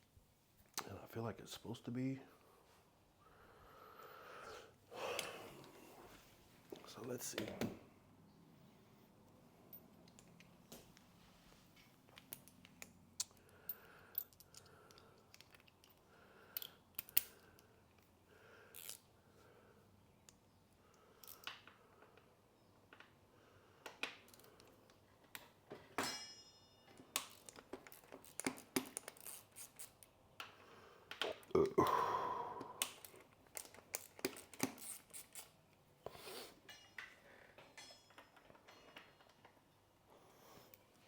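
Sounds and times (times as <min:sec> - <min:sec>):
metal tools clinking: 0:26.0 - 0:28.4, 0:36.6 - 0:39.6.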